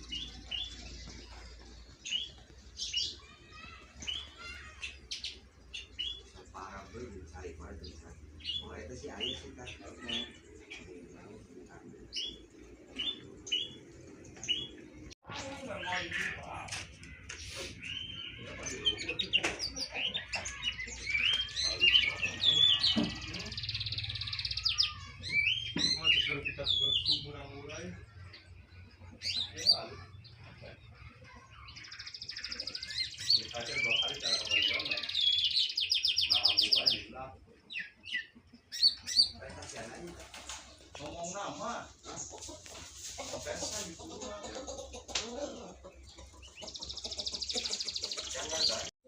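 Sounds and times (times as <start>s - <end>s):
scratchy bird trill: 0.0s - 7.4s
songbirds chirping: 0.0s - 49.0s.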